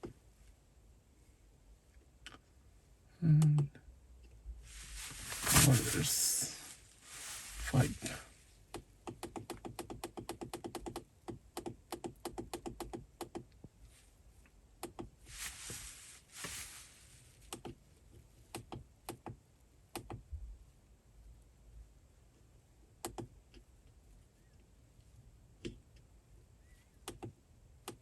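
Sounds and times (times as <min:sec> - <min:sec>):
handling rustle: 0:04.7 - 0:08.3, 0:15.3 - 0:17.5.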